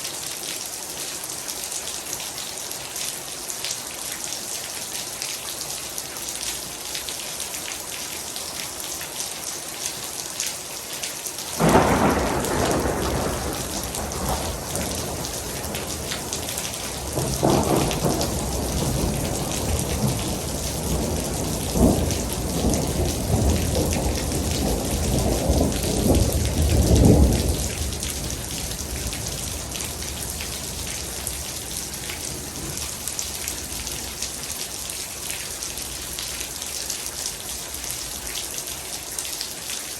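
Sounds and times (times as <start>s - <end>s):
heavy rain: 0.0s - 39.9s
thunder clap: 11.6s - 31.1s
rolling thunder rumble: 11.6s - 33.9s.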